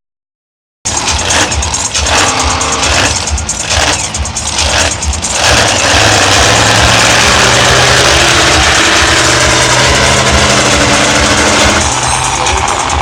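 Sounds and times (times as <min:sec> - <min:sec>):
monster truck engine running: 0:00.9 - 0:13.0.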